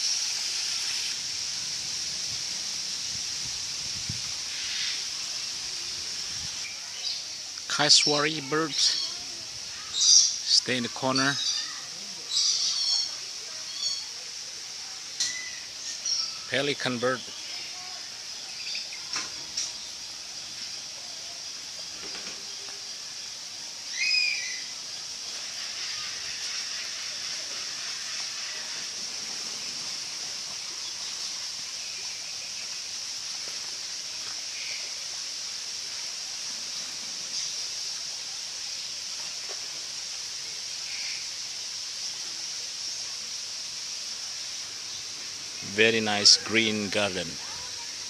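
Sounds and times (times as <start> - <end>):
steady high-pitched hiss: 0.0 - 48.0
faint bird chirps: 4.5 - 14.2, 15.2 - 23.2, 23.8 - 28.9
bird calls: 8.0 - 14.2, 23.9 - 32.8.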